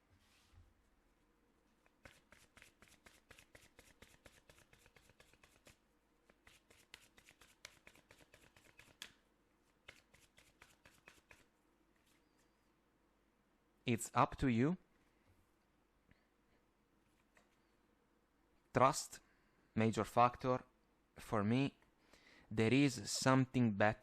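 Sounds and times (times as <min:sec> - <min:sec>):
cards shuffling by hand: 0:01.8 - 0:09.2, 0:09.8 - 0:12.3.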